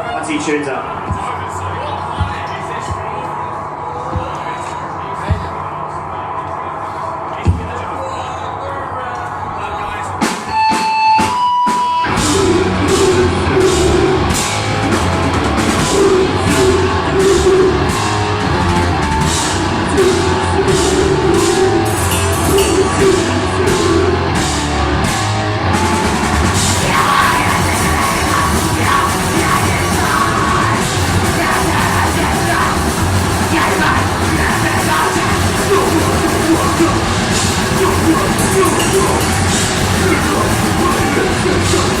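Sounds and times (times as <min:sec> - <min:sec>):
distorted guitars: 0:00.0 - 0:42.0
rapid drumming: 0:10.2 - 0:42.0
held guitar tones: 0:10.5 - 0:42.0
screamed vocals: 0:12.0 - 0:14.6, 0:15.6 - 0:24.6, 0:25.7 - 0:42.0
bass guitar: 0:12.0 - 0:42.0.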